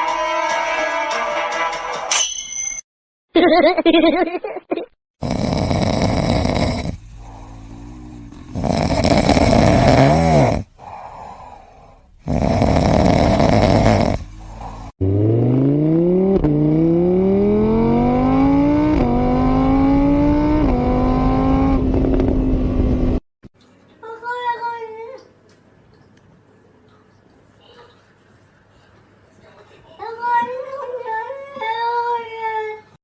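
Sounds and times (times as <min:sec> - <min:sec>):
car engine accelerating: 0:13.4 - 0:23.2.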